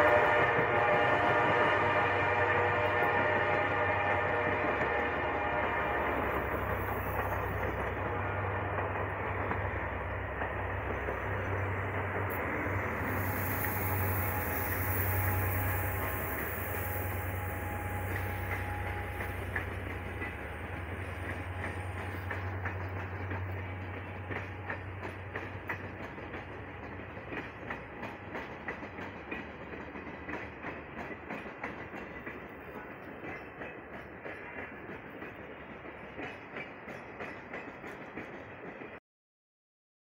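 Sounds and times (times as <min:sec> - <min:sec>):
locomotive engine drone: 0:00.0 - 0:27.9
carriage wheels clacking on rails: 0:06.2 - 0:39.0.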